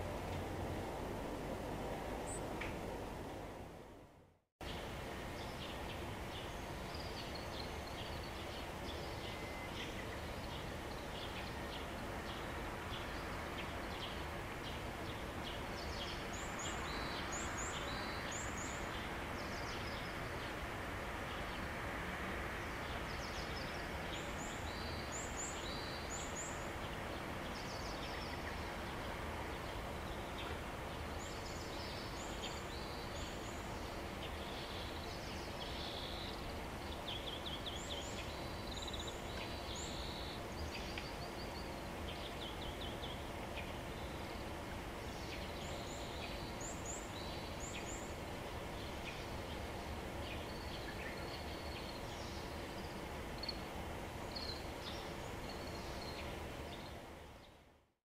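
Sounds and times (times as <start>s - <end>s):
outdoor background noise: 0.0s - 58.0s
small birds chirping: 22.6s - 57.7s.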